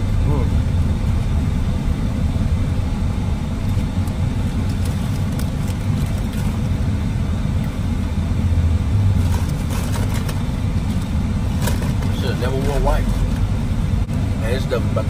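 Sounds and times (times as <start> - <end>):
car engine rumble inside cabin: 0.0 - 15.0
paper bag crinkling: 4.7 - 6.7.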